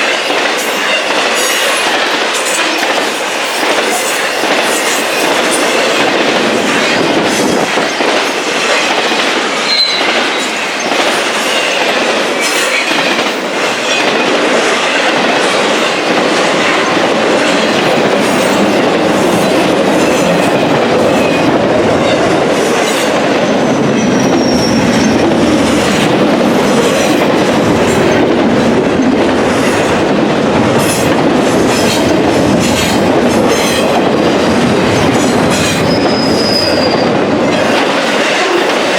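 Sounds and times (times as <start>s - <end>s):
train cars rumbling past: 0.0s - 38.9s
high wheel squeals: 9.7s - 10.6s, 23.6s - 25.3s, 35.8s - 37.1s.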